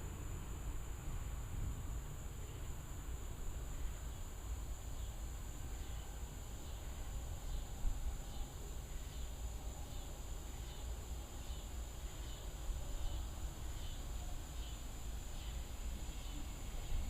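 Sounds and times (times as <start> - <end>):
faint insect chirp: 0.0 - 17.0
insects buzzing: 0.0 - 17.0.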